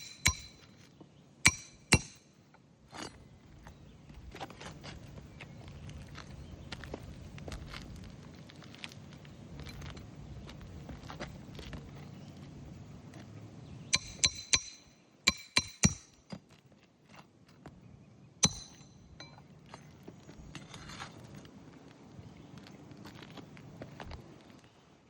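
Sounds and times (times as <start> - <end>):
hammer driving nails into shingles: 0.0 - 0.7, 1.5 - 2.3, 14.0 - 16.2, 18.4 - 18.9.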